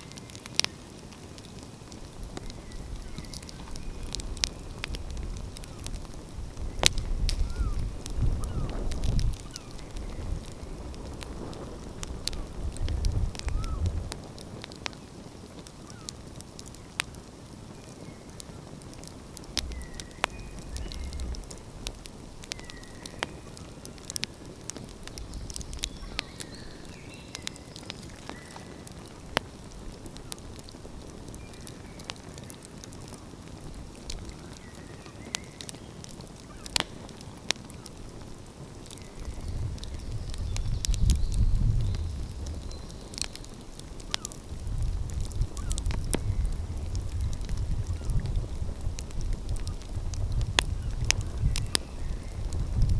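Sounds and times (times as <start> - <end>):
wood fire crackling and popping: 0.0 - 52.9
faint bird calls: 7.4 - 10.6, 13.4 - 13.9, 15.8 - 16.2, 34.3 - 36.8, 44.1 - 44.4
low rumble: 19.5 - 22.5.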